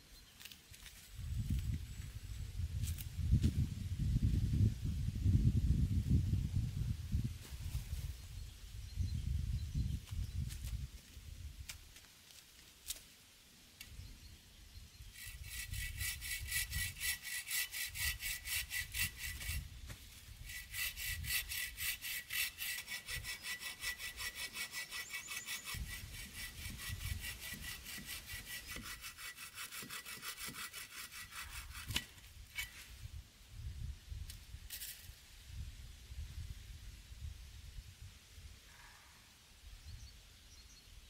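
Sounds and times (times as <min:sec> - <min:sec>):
hand saw cutting wood: 0:15.1 - 0:19.7, 0:20.4 - 0:32.8.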